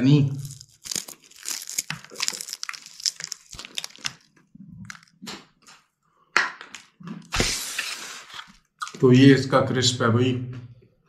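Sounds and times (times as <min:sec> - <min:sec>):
crispy chicken wing crunching: 0:00.2 - 0:05.8.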